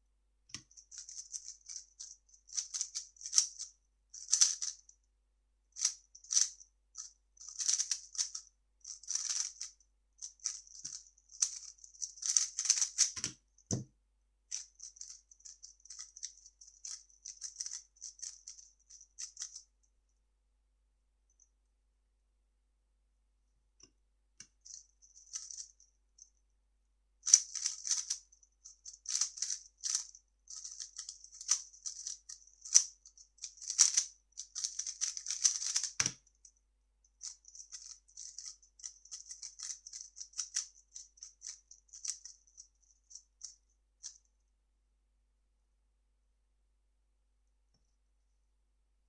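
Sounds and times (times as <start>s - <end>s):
plastic puzzle cube clicking: 4.2s - 4.7s, 7.6s - 8.4s, 10.4s - 13.4s, 27.3s - 28.2s, 29.0s - 32.9s, 33.6s - 36.2s.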